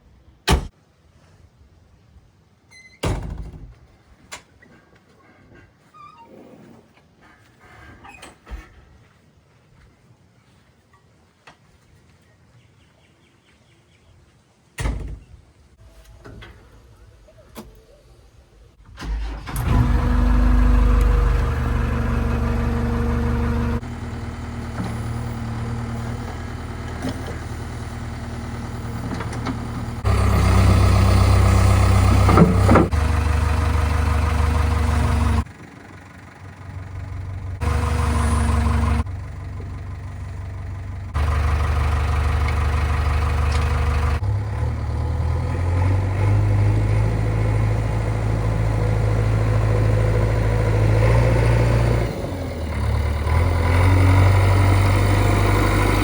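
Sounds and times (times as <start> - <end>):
diesel engines running: 17.6 - 56.0.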